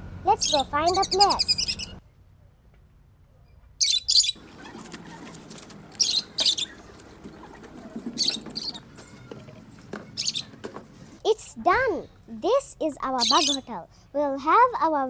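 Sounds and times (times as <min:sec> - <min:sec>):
birds chirping: 0:00.3 - 0:02.0, 0:03.8 - 0:11.2, 0:13.2 - 0:13.7.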